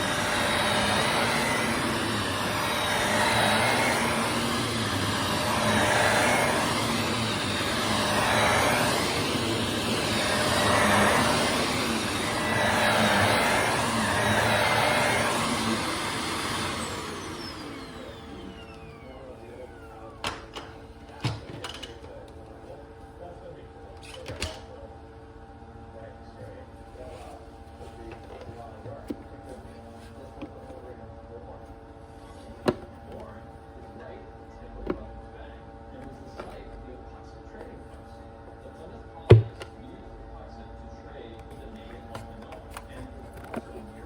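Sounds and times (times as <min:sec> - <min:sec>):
motor winding down whine: 0:00.0 - 0:20.6
vacuum cleaner on rug: 0:00.0 - 0:23.3, 0:34.0 - 0:44.0.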